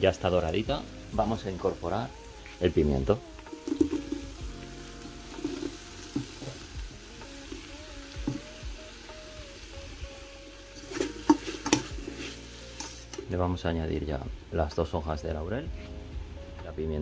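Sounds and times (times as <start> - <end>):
oil sizzling: 0.0 - 15.2
peppers tipped into pot: 3.6 - 4.3, 10.8 - 12.0.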